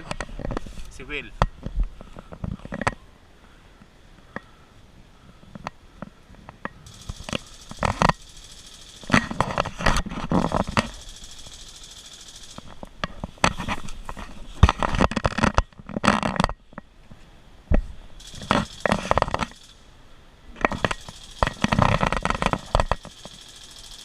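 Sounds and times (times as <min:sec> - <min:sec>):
rustling and crunching in dry brush: 0:00.0 - 0:03.6, 0:05.2 - 0:19.7
steady high hiss: 0:03.0 - 0:14.6, 0:16.7 - 0:24.0.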